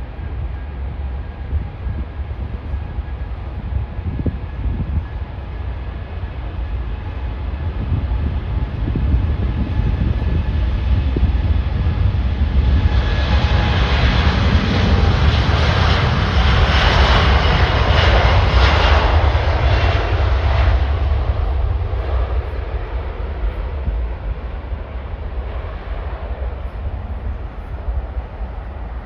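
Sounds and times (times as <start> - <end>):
jet airliner engines roaring: 0.0 - 29.0.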